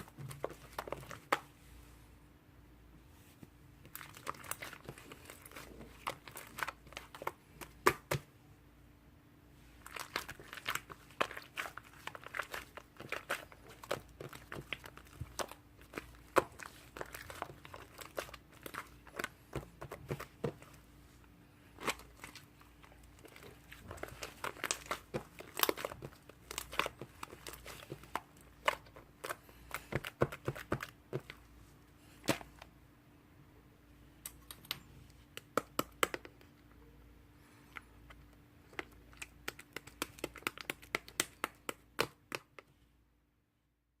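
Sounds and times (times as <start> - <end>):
slime crackling and popping: 9.8 - 20.8, 21.7 - 31.3, 38.7 - 42.5.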